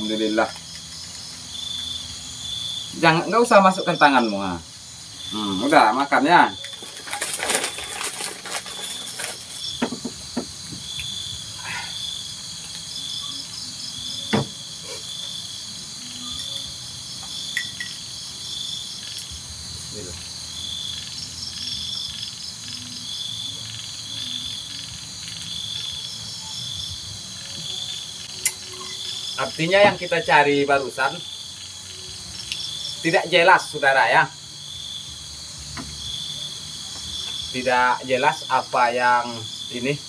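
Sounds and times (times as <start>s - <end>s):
crickets chirping: 0.0s - 40.0s
insect trill: 0.0s - 40.0s
single knock: 14.3s - 14.5s.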